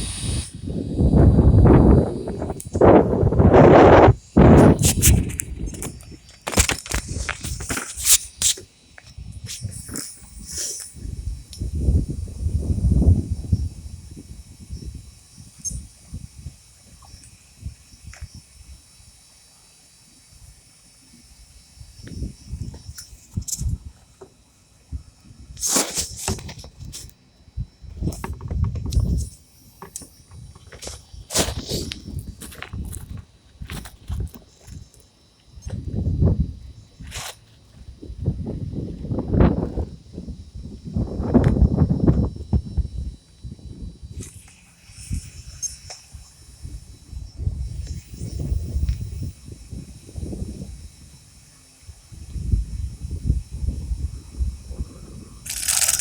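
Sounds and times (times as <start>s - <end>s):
wind buffeting microphone: 0.0s - 8.5s, 9.1s - 18.8s, 24.9s - 29.4s, 37.8s - 44.4s, 52.0s - 56.0s
crackling knocks and rustles: 4.8s - 10.2s, 27.9s - 35.1s.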